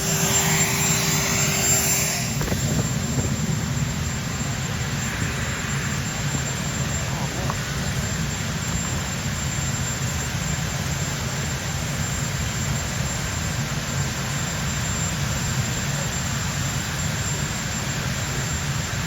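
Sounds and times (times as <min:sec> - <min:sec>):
bicycle road rumble: 0:02.2 - 0:09.5
wind noise on camera: 0:02.3 - 0:04.2.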